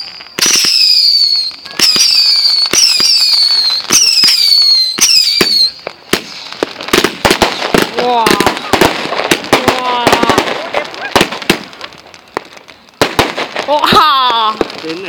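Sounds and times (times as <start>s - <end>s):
whistling fireworks with pops: 0.0s - 15.0s.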